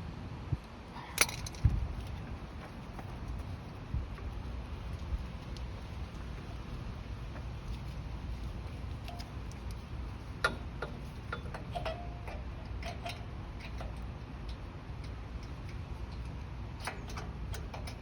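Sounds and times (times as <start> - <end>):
steady low hum: 0.0 - 18.0
metal parts clicking and tapping: 1.1 - 2.8, 8.8 - 18.0.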